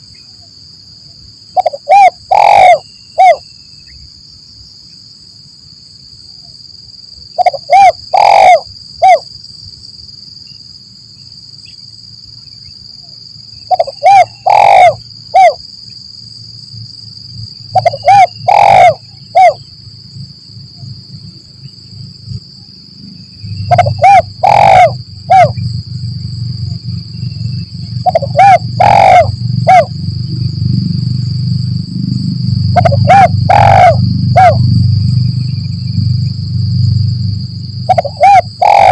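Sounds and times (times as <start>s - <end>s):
dove cooing: 1.6s - 3.4s, 7.4s - 9.2s, 13.7s - 15.6s, 17.7s - 19.6s, 23.6s - 25.6s, 28.0s - 30.0s, 32.7s - 34.7s, 37.9s - 38.9s
high-pitched whine: 13.0s - 38.9s
low rumble: 25.0s - 38.0s.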